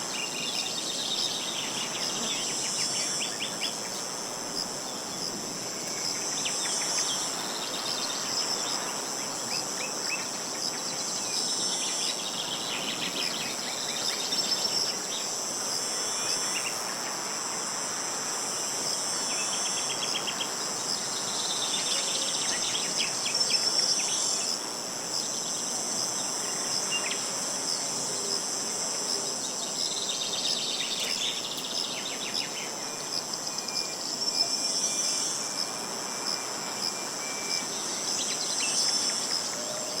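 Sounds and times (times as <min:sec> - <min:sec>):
insects chirring: 0:00.0 - 0:40.0
wind hiss: 0:00.0 - 0:40.0
bird singing: 0:29.4 - 0:34.6.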